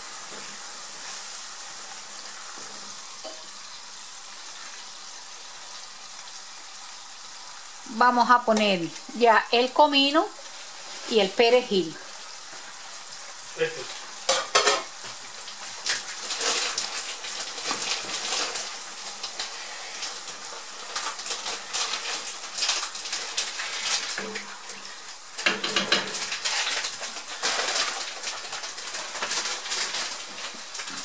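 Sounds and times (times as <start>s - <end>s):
sauce sizzling in a pan: 0.0s - 31.0s
spatula stirring and scraping: 10.3s - 31.0s.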